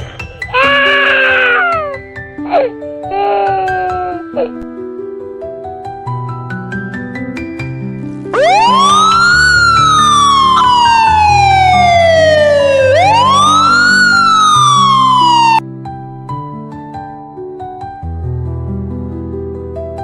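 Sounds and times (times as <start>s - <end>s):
soft background music: 0.0s - 20.0s
emergency vehicle siren wailing: 8.4s - 15.6s.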